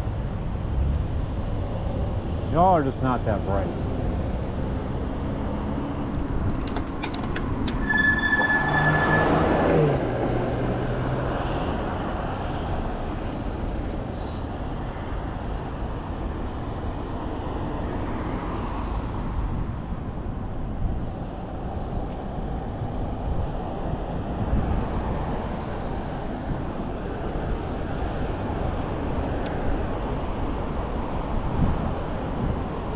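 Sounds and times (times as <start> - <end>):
passing vehicle: 0.0 - 20.3
road and tyre noise: 0.0 - 32.9.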